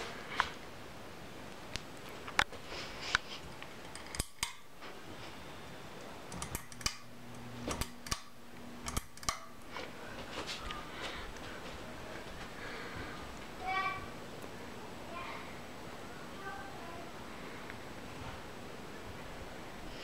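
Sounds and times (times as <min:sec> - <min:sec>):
low steady hum: 0:00.0 - 0:20.0
ceiling fan pull chain clicking: 0:03.6 - 0:04.7, 0:06.3 - 0:09.7.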